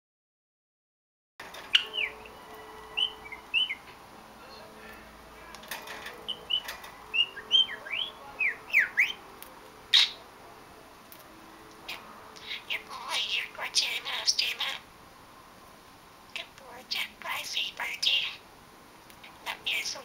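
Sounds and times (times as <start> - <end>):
budgerigar chirping: 1.7 - 3.9, 6.2 - 9.2, 9.9 - 10.2, 11.9 - 14.9, 16.4 - 18.4, 19.3 - 20.0.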